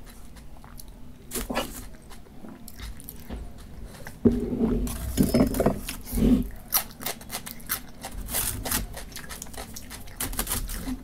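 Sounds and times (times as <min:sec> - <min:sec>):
person chewing: 0:00.0 - 0:05.0, 0:05.8 - 0:11.0.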